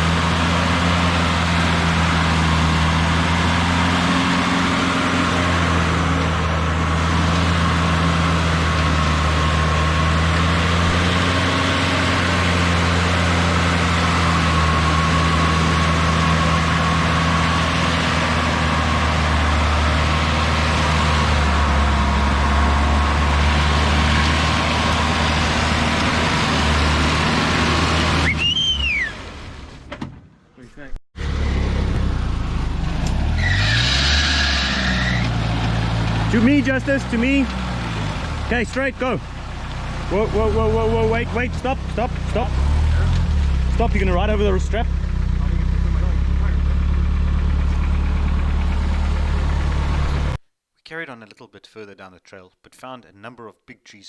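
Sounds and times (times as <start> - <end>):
car engine idling: 35.4 - 50.4.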